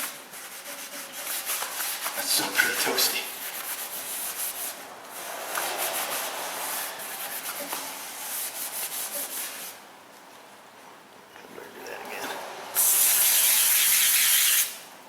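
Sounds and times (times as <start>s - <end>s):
hand rubbing steel wheel: 0.0s - 9.8s.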